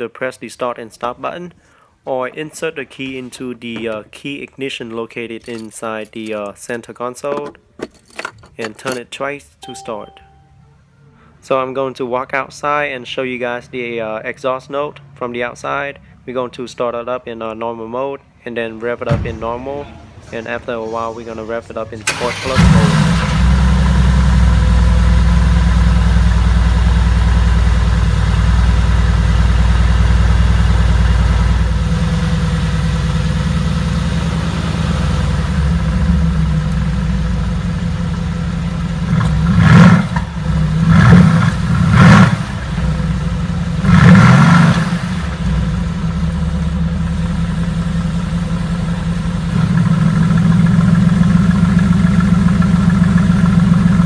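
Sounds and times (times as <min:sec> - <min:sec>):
car exhaust idling and revving: 0:22.6 - 0:54.0.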